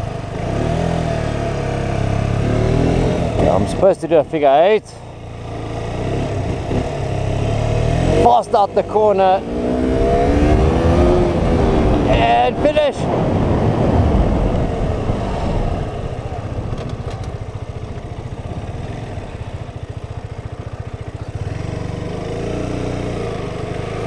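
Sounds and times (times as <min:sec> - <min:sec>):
motorcycle engine puttering: 0:02.1 - 0:12.8, 0:15.4 - 0:24.0
wind noise: 0:09.7 - 0:19.3.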